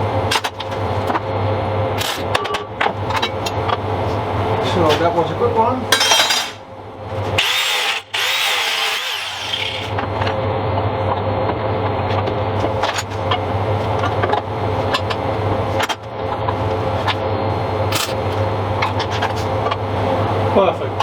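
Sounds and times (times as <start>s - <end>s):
metalworking tool whining: 5.9s - 10.0s.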